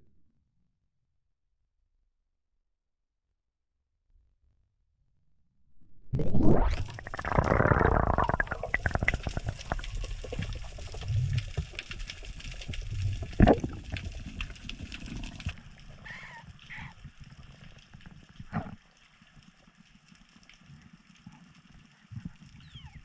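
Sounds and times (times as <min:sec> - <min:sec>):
water sloshing and gurgling: 0:06.1 - 0:23.0
crackling clicks: 0:06.2 - 0:15.9.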